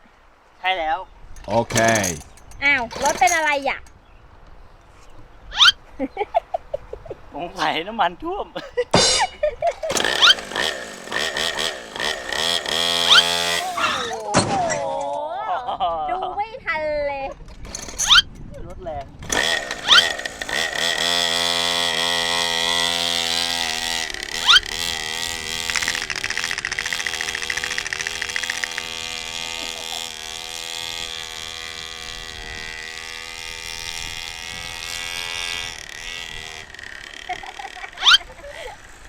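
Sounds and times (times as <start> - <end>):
two-stroke dirt bike engine: 1.4 - 4.1, 9.6 - 14.8, 17.3 - 39.0.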